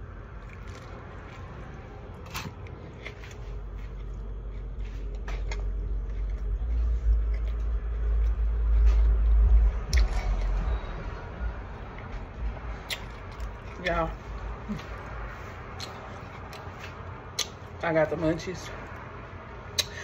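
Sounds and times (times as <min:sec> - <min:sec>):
low rumble: 0:00.0 - 0:16.0
person chewing a sandwich: 0:00.1 - 0:17.8, 0:18.9 - 0:20.0.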